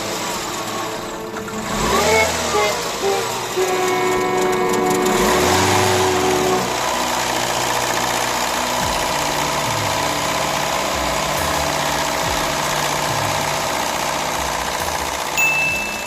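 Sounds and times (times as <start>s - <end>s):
car engine idling unevenly: 0.0s - 16.0s.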